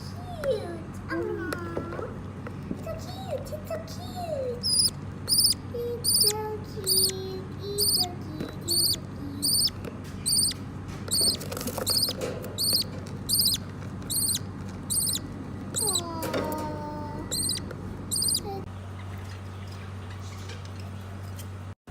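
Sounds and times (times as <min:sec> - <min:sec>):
parakeet cheeping: 0:04.5 - 0:16.2, 0:17.1 - 0:18.6
fainter lower bird calls: 0:04.6 - 0:08.1, 0:08.7 - 0:16.1, 0:17.2 - 0:18.6.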